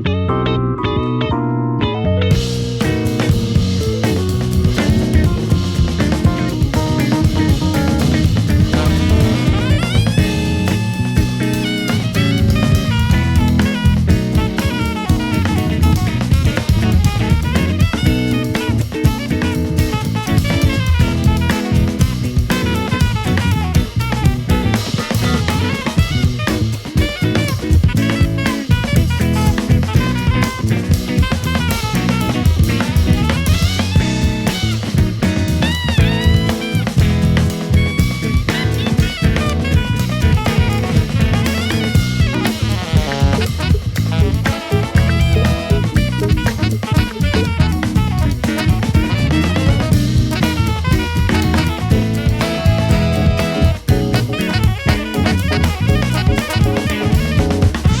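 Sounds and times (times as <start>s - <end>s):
electric bass: 0.0s - 58.0s
guitar: 0.0s - 58.0s
keyboard lines: 0.0s - 58.0s
drum kit beat: 2.3s - 58.0s
horn lines: 2.3s - 58.0s.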